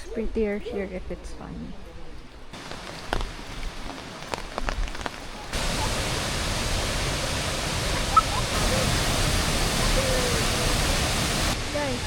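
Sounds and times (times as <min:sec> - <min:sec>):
rain falling: 0:02.6 - 0:12.0
rush of falling water: 0:02.6 - 0:12.0.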